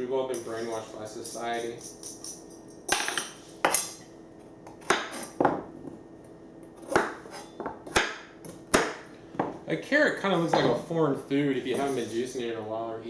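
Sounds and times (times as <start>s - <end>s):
dishes and cutlery clattering: 0.3s - 4.0s.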